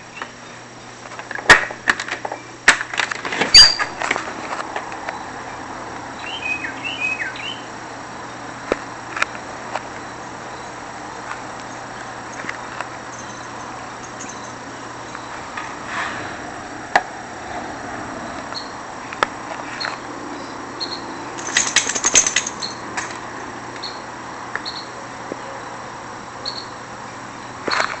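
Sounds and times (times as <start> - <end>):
high bird chirps: 6.2 - 7.7, 19.8 - 21.2.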